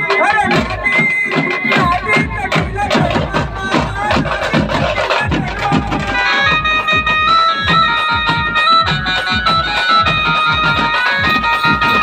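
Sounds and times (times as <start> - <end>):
steady drum beat: 0.0 - 12.0
electronic keyboard melody: 6.0 - 12.0.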